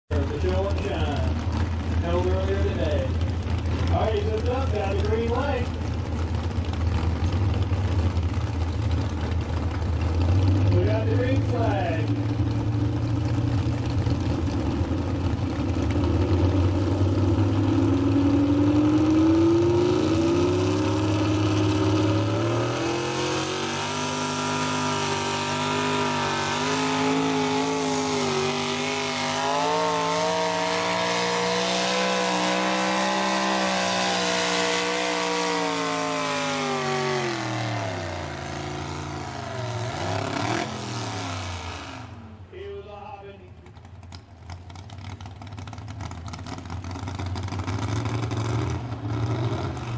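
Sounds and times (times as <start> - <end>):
truck engine at full throttle: 0.1 - 49.9.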